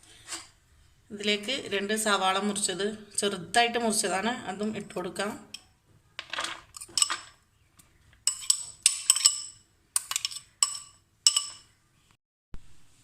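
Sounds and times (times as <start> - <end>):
spoon clinking on metal bowl: 8.3 - 11.7.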